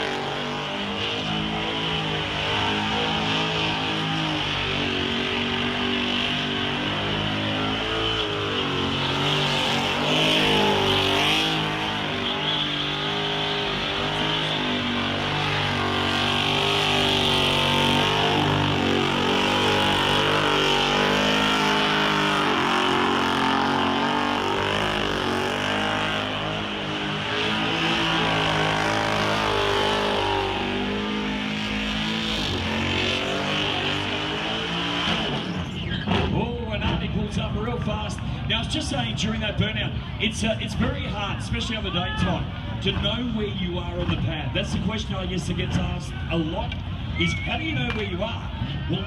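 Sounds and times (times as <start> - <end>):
engine revving high: 0.0 - 36.3.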